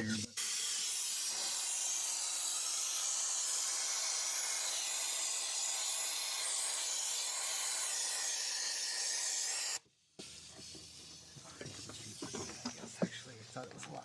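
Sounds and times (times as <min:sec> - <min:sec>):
compressed air hissing: 0:09.1 - 0:13.7.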